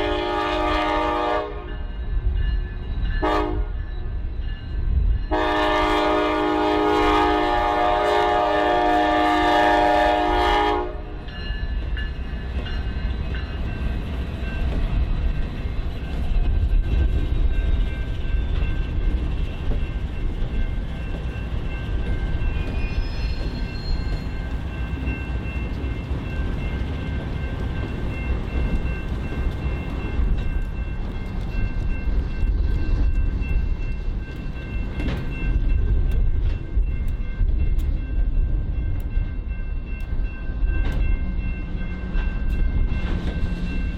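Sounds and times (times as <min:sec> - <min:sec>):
train horn: 0:00.0 - 0:01.9, 0:03.2 - 0:03.9, 0:05.3 - 0:11.3
train rumbling past: 0:00.0 - 0:43.9.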